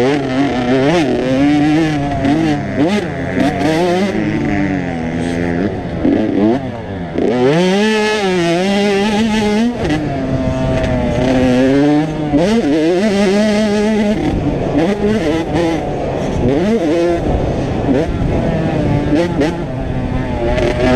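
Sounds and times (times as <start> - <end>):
motocross bike engines revving: 0.0 - 20.9.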